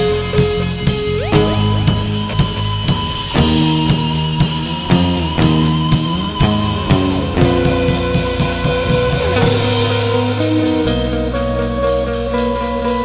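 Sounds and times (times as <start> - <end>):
electric guitars ringing chords: 0.0 - 13.0
drum kit hits: 0.8 - 10.8.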